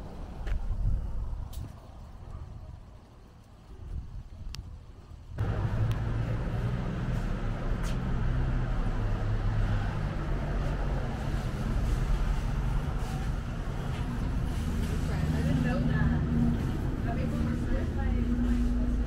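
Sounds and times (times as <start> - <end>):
vehicle engine idling: 5.3 - 19.0.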